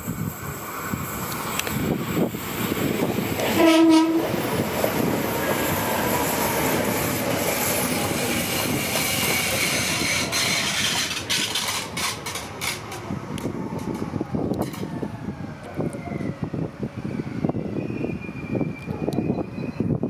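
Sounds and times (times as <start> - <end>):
electric train passing: 0.0 - 20.0
wheels rushing on rails: 0.0 - 20.0
sharp clacks of train cars: 3.1 - 15.0.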